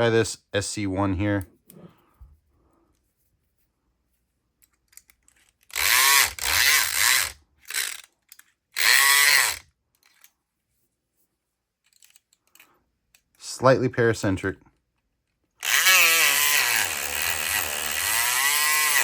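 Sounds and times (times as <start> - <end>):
faint handling clicks: 4.6 - 5.8
electric lock pick gun buzzing: 5.7 - 8.0, 8.8 - 9.6, 15.6 - 19.0.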